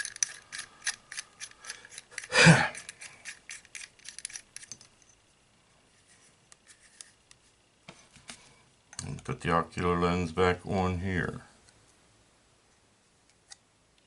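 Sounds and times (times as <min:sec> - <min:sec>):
small parts clicking and tapping: 0:00.0 - 0:05.2.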